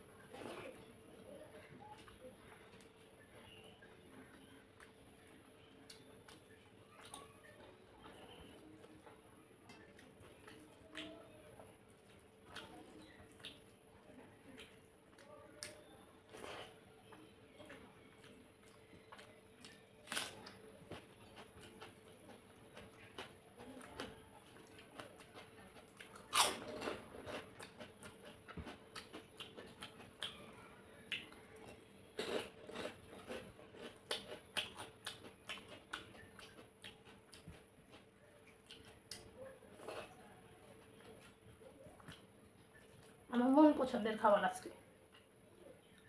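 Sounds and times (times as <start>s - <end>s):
chewing and smacking: 1.5s - 43.3s
crunchy bites of fried papad: 14.4s - 43.1s.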